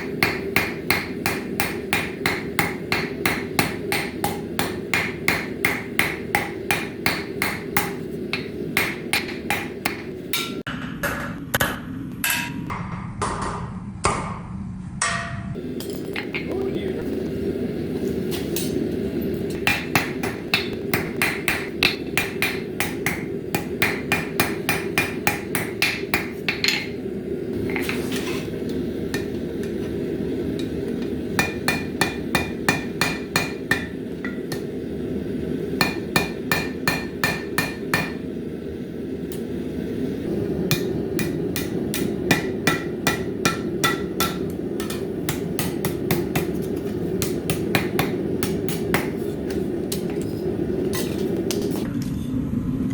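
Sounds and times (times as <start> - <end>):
hammer striking steel on anvil: 0.0 - 16.5, 19.5 - 27.0, 29.1 - 29.8, 30.6 - 34.8, 35.8 - 38.3, 40.6 - 51.8
steady low rumble: 14.6 - 27.8, 28.4 - 52.9.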